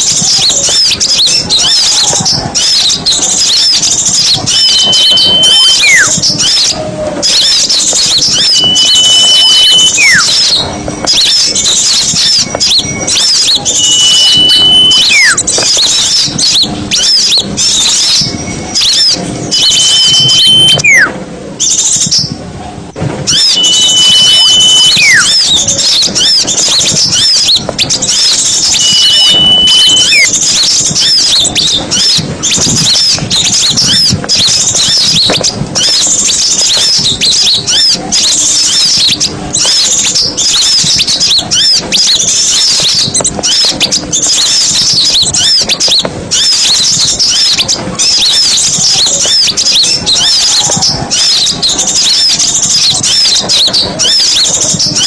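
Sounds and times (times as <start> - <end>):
songbirds chirping and twittering: 0.0 - 55.0
long whistle dropping in pitch: 23.3 - 25.3.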